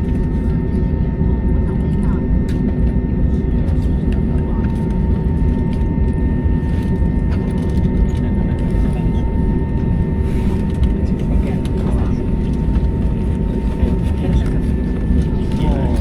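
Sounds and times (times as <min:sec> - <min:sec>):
airliner cabin rumble and whine: 0:00.0 - 0:16.0.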